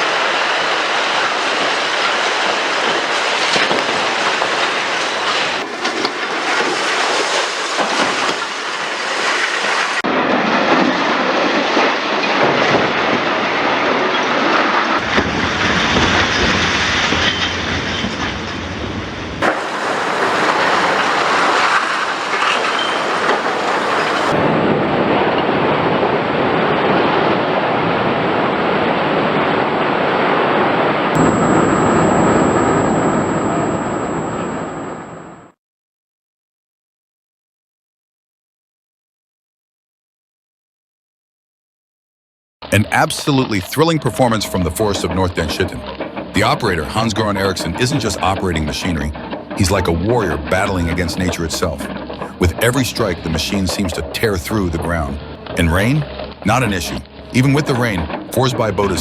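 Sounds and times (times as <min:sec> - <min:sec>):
excavators rumbling and clattering: 0:15.0 - 0:24.6, 0:42.7 - 0:59.0.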